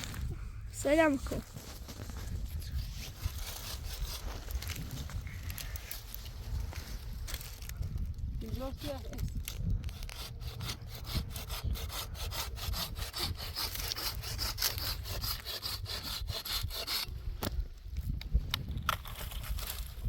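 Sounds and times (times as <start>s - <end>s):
hand saw cutting wood: 2.8s - 4.4s, 9.8s - 17.1s.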